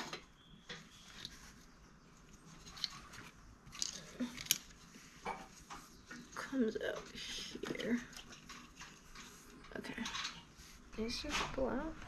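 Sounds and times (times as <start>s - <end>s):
small parts clicking and tapping: 2.6s - 10.5s.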